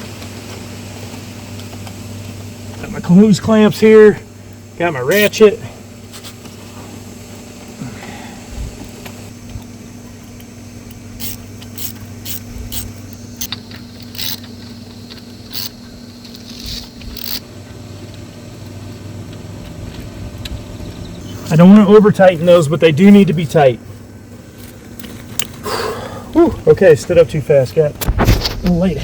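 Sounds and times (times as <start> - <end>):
steady low hum: 0.0 - 29.0
hand ratchet clicking: 11.2 - 17.4.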